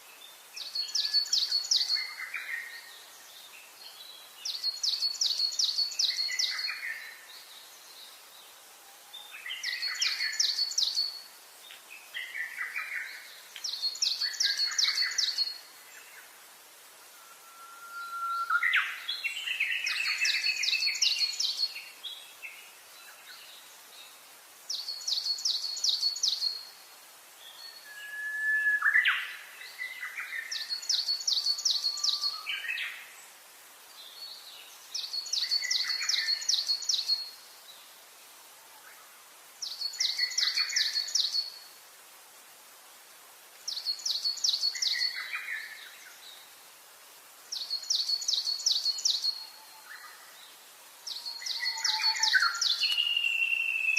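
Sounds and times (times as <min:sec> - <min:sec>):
bird singing high trill: 0:51.2 - 0:53.9.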